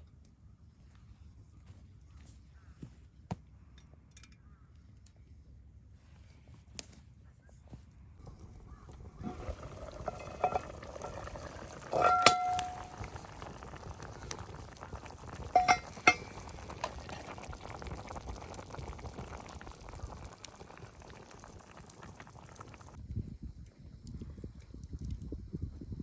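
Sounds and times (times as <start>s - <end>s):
pot bubbling at the boil: 8.2s - 25.6s
metal utensil clinking on pot: 9.2s - 13.5s, 15.4s - 17.4s.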